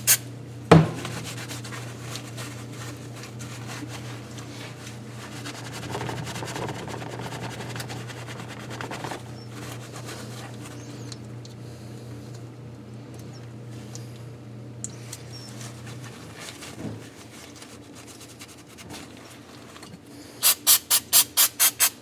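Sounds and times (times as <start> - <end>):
brisk scrubbing of engine parts: 0.8 - 10.9.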